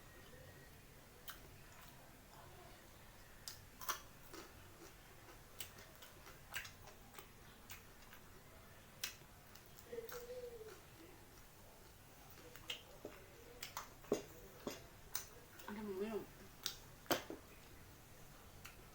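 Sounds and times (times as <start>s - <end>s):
chewing clicks and smacks: 1.2s - 2.1s, 3.4s - 8.4s, 9.0s - 15.8s, 16.6s - 17.8s, 18.6s - 18.9s.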